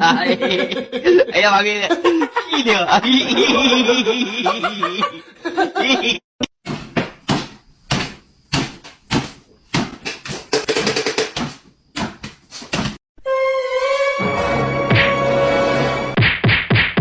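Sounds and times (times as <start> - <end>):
irregular knocks and bangs indoors: 6.6 - 13.0.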